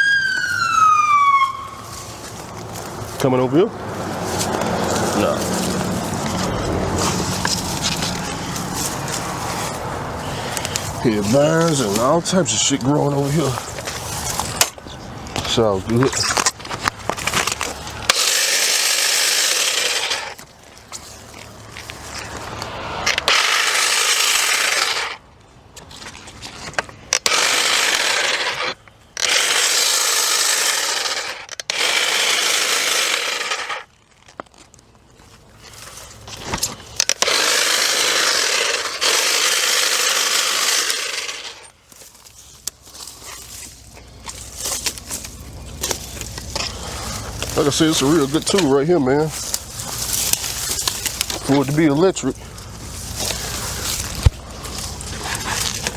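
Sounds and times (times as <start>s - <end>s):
electric cutting tool cutting brush: 0.0s - 13.6s, 17.4s - 20.4s, 23.0s - 25.2s, 27.2s - 33.8s, 37.0s - 41.7s, 44.7s - 52.4s.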